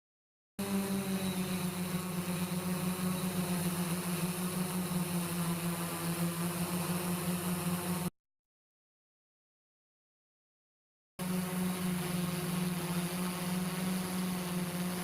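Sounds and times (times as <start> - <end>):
steady mechanical hum: 0.6 - 8.1, 11.2 - 15.0.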